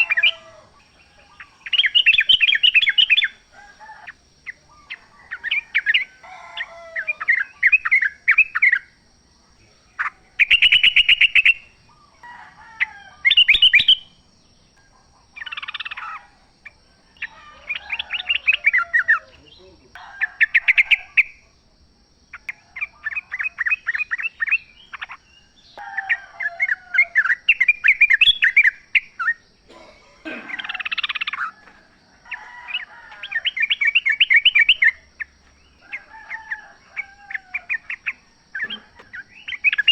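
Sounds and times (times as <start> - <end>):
bulbuls singing bubbly phrases: 0.0 - 12.2, 17.1 - 21.5, 26.0 - 39.9.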